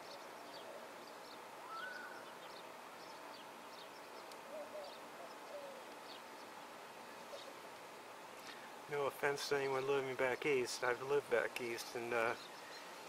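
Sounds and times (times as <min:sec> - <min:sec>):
high falling bird chirps: 0:00.0 - 0:07.6
low wavering bird calls: 0:00.0 - 0:07.7
whistled bird note: 0:01.6 - 0:02.4.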